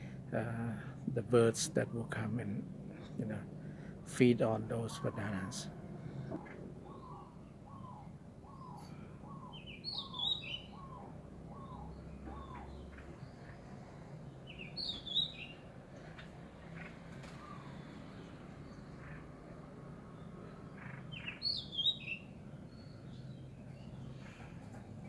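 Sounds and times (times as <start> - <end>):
steady low hum: 0.0 - 14.5
bird chirping phrases: 0.3 - 5.8, 6.8 - 24.5.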